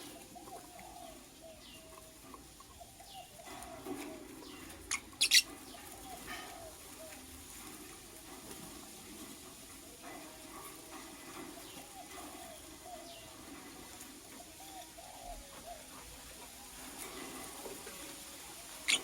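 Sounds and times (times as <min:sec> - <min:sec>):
lovebirds chirping: 0:00.0 - 0:07.3, 0:14.4 - 0:17.1, 0:18.4 - 0:19.0.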